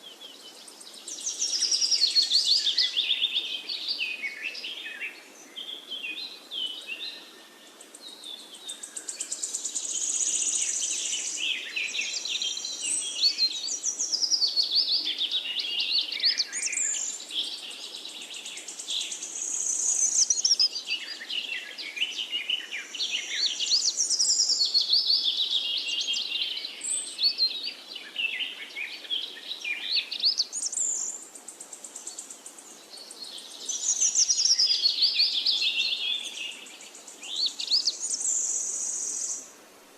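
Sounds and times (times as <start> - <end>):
birds chirping and trilling: 0.0 - 39.5.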